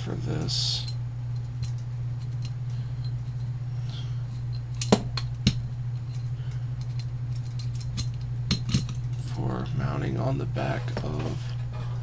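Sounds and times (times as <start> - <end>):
low hum: 0.0 - 12.0
metal parts clinking: 4.3 - 9.2.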